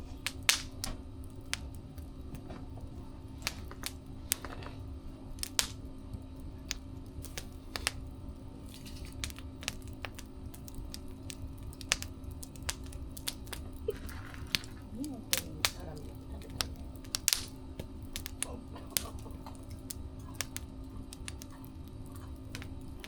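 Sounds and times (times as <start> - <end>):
low rumble of burning: 0.0 - 23.0
wood fire crackling: 0.0 - 23.0
sharp pops: 16.6 - 17.5.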